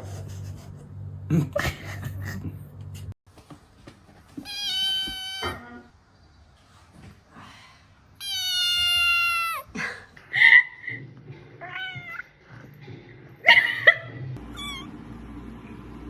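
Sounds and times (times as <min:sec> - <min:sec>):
cat meowing: 0:04.4 - 0:05.9, 0:08.2 - 0:09.7, 0:11.6 - 0:12.3.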